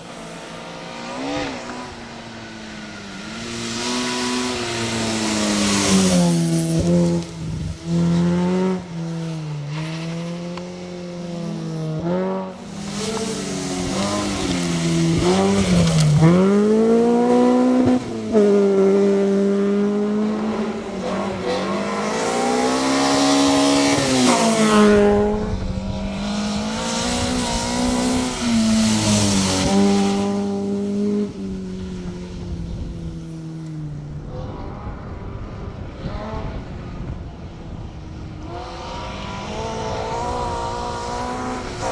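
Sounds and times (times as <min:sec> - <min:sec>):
rally car engine revving hard: 0:11.8 - 0:31.4, 0:38.5 - 0:41.9.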